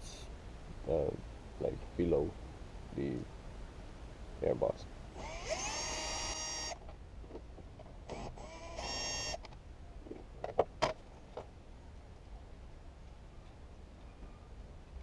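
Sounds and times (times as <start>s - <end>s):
cordless screwdriver whining: 5.2s - 6.8s, 8.1s - 9.4s.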